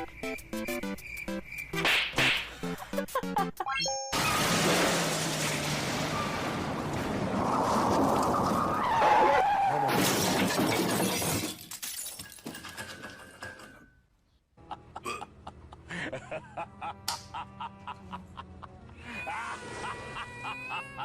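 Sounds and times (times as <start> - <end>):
crash of something breaking: 4.2 - 8.8, 9.6 - 11.8.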